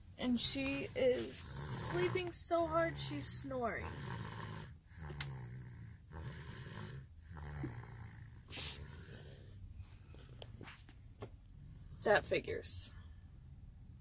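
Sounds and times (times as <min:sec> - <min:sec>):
child snoring: 0:00.6 - 0:09.7.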